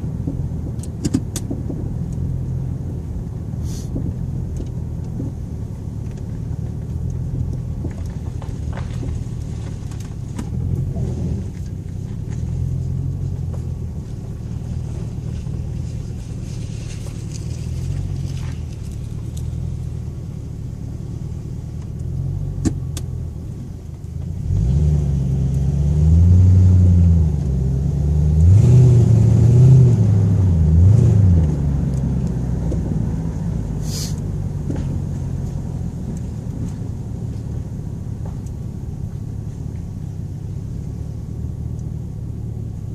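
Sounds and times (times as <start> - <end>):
car engine accelerating: 0.0 - 42.9.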